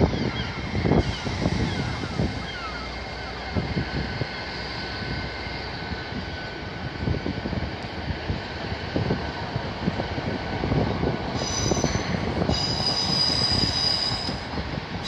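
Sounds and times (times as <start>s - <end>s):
high squealing wheels: 0.0s - 6.6s, 11.3s - 15.0s
train wheels rumbling: 0.0s - 15.0s
wind buffeting microphone: 0.0s - 15.0s.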